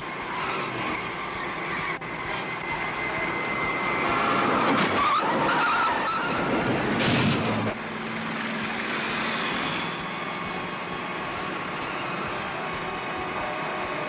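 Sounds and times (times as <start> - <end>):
car speeding: 0.0 - 14.0
tyres squealing: 0.3 - 7.7.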